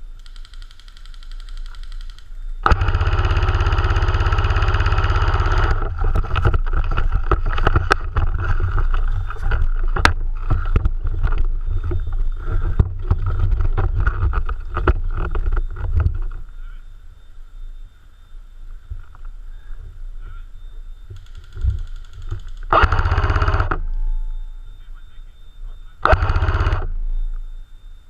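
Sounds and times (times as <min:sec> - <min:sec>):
airsoft gun full-auto burst: 0:00.2 - 0:06.0, 0:21.2 - 0:23.8, 0:26.0 - 0:26.9
gearbox motor whir: 0:02.6 - 0:16.5, 0:20.9 - 0:24.4, 0:26.0 - 0:27.6.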